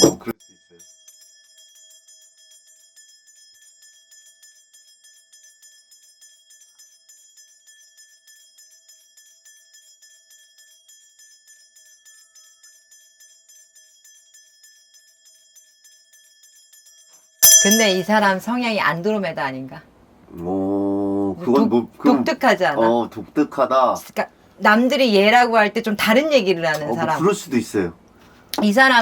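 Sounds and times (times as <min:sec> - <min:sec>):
bell rattle jingling: 0:00.0 - 0:19.5.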